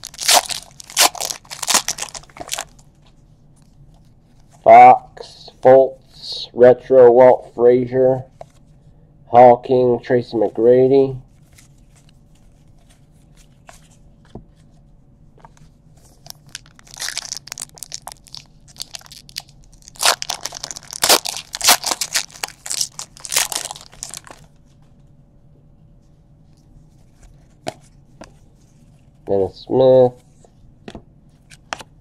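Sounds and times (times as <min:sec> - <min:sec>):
foil wrappers tearing and crumpling: 0:00.0 - 0:02.8, 0:16.2 - 0:24.5.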